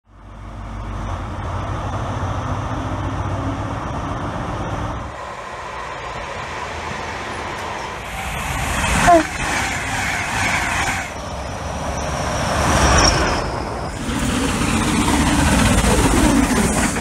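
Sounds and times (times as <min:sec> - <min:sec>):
diesel train engine humming: 0:00.1 - 0:17.0
electric train running: 0:04.0 - 0:17.0.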